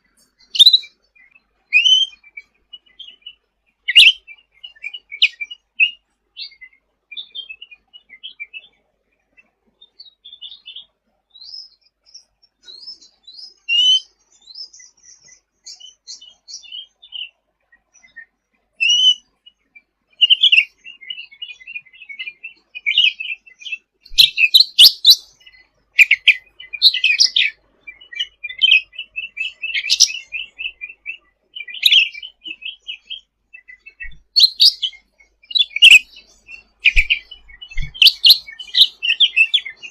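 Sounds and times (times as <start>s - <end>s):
songbird chattering twitters and trills: 0.0s - 8.6s, 20.2s - 39.9s.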